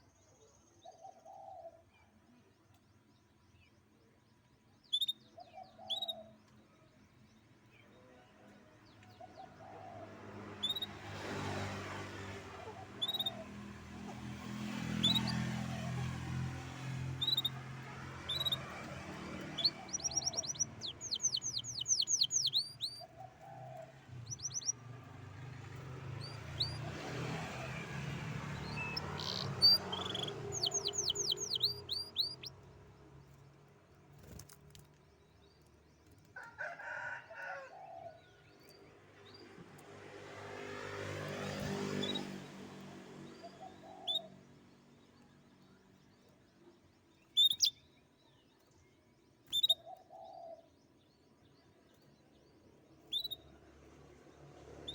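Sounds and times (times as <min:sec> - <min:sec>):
canary singing: 0:04.9 - 0:06.4, 0:10.5 - 0:11.2, 0:12.6 - 0:13.7, 0:14.7 - 0:33.4, 0:43.2 - 0:44.8, 0:46.9 - 0:48.1, 0:49.4 - 0:50.7, 0:53.0 - 0:53.5
traffic rumble: 0:08.5 - 0:36.5, 0:38.4 - 0:47.7.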